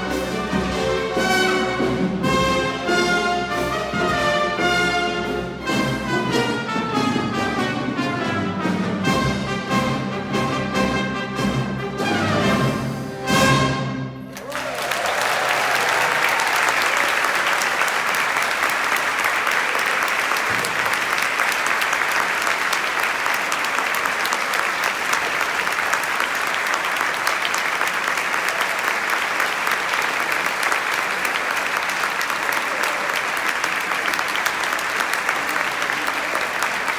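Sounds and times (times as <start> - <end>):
audience applauding: 14.2 - 36.9.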